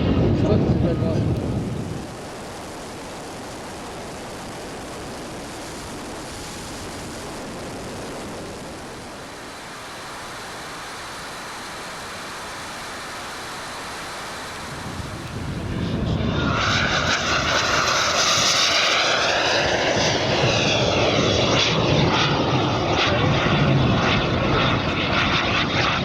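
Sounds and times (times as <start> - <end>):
distant jet turbines hissing: 0.0 - 26.0
faint high whine: 0.0 - 26.0.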